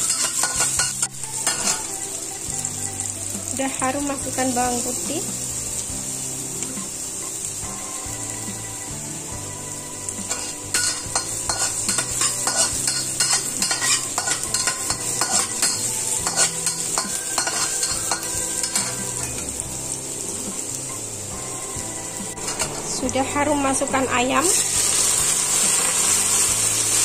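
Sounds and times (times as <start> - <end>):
metal spatula scraping a wok: 0.0 - 1.9, 10.3 - 19.6
food sizzling in hot oil: 0.0 - 27.0.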